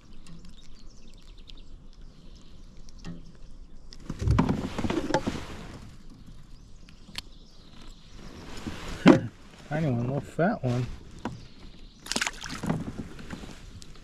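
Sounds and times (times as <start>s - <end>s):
knocks and rustling on a kayak: 4.0s - 6.4s, 8.5s - 9.6s, 10.9s - 14.0s.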